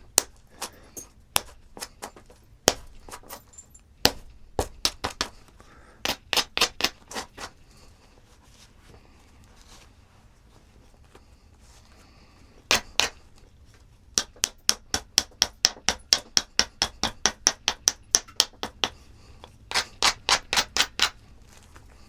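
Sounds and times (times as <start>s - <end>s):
stone striking stone clicks: 0.1s - 3.5s, 4.1s - 5.4s, 6.1s - 7.2s, 12.7s - 13.2s, 14.2s - 21.2s.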